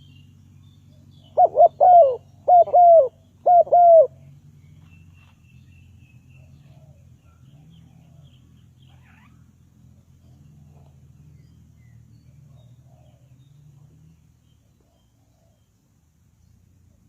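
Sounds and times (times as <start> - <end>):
dove cooing: 1.3 - 4.2
faint small bird chirps: 4.1 - 16.7.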